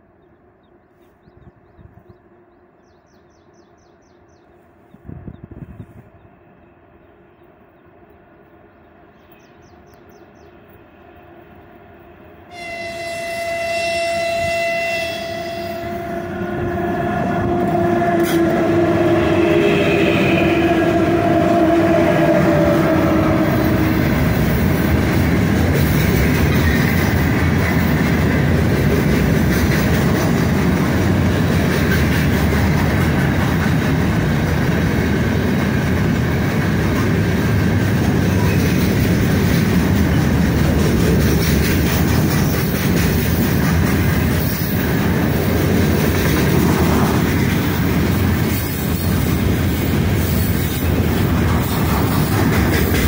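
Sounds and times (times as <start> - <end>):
locomotive horn blasts: 12.5 - 23.8.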